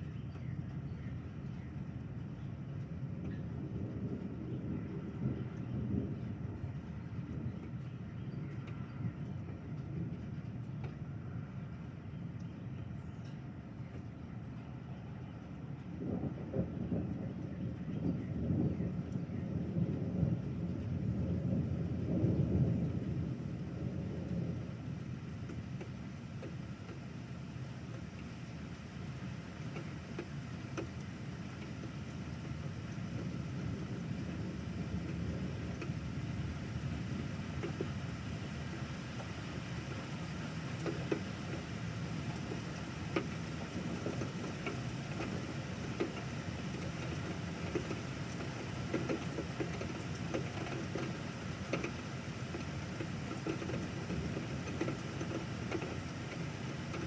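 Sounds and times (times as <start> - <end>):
rain: 0.0 - 57.0
raindrops ticking: 2.0 - 14.6, 24.2 - 57.0.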